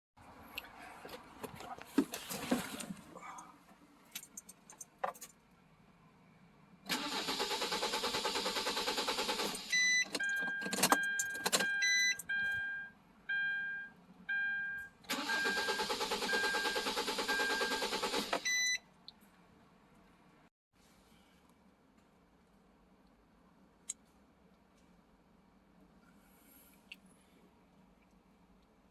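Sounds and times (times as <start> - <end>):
diesel engine cranking: 6.9 - 12.3, 15.1 - 18.5
electronic warning beeps: 9.7 - 17.8, 18.4 - 18.8.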